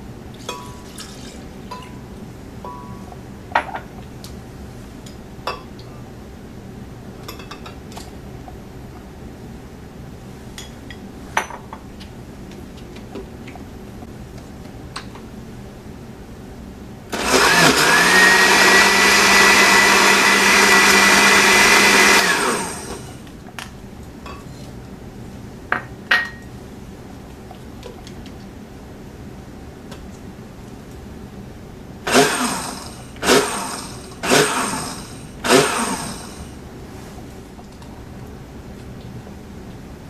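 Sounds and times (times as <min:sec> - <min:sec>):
blender motor running: 0:17.2 - 0:23.2, 0:32.1 - 0:36.5.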